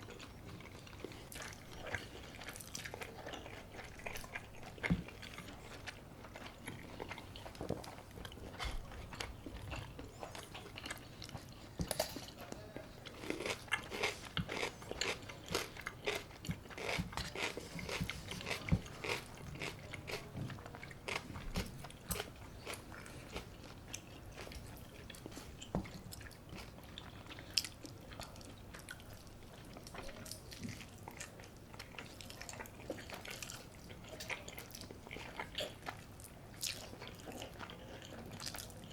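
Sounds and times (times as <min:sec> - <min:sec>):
crunchy bites and chewing: 0:13.1 - 0:20.3.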